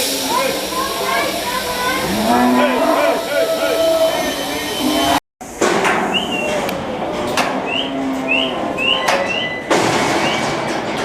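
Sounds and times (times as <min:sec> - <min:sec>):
saleyard background din: 0:00.0 - 0:11.0.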